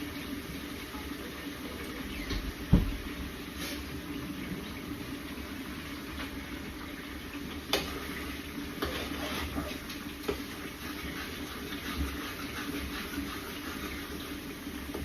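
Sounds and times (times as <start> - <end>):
food hissing in a pan: 3.4 - 4.1, 7.8 - 15.0.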